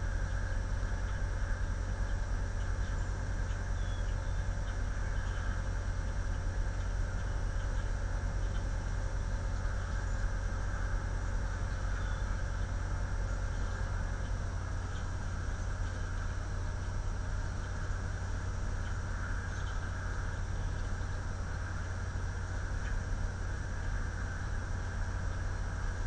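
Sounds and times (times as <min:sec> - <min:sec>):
wind rumble and hiss: 0:00.0 - 0:26.0.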